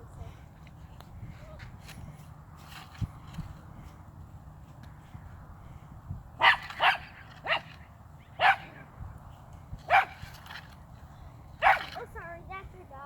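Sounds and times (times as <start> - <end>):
dog barking: 6.4 - 7.7, 8.4 - 8.7, 9.9 - 10.2, 11.6 - 11.9.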